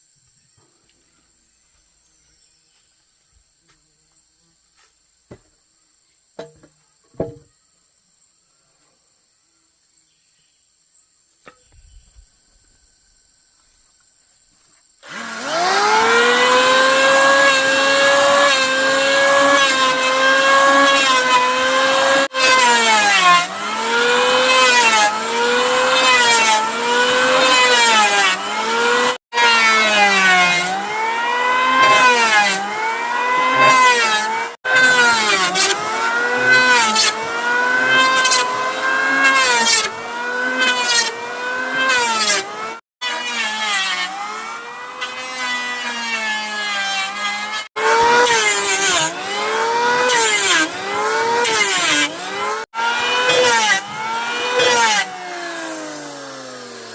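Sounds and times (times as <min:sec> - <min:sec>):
power saw cutting wood: 0:15.0 - 0:56.9.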